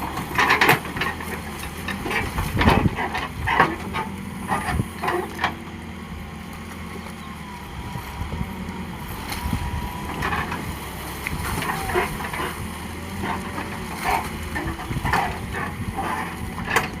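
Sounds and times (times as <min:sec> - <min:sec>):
diesel engine running: 0:00.0 - 0:17.0
machine clanks and creaks: 0:00.1 - 0:05.6, 0:13.2 - 0:17.0.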